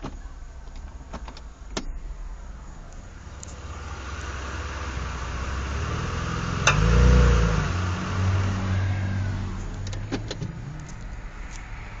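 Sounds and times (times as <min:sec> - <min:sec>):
car engine under load: 0:00.0 - 0:12.0.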